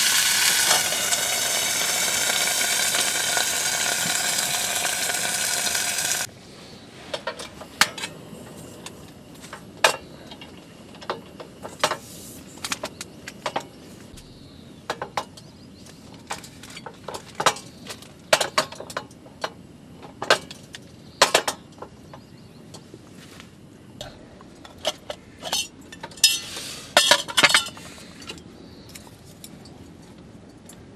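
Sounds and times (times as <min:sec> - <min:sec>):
loud steady hiss: 0:00.0 - 0:16.3, 0:26.3 - 0:28.2.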